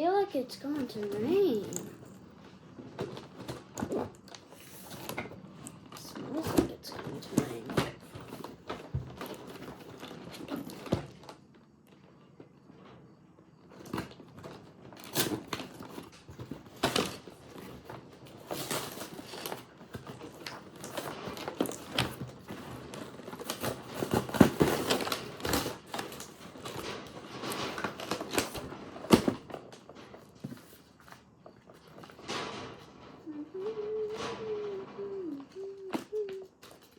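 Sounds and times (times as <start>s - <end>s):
packaging rustling and crinkling: 0.6s - 12.9s, 13.6s - 36.9s.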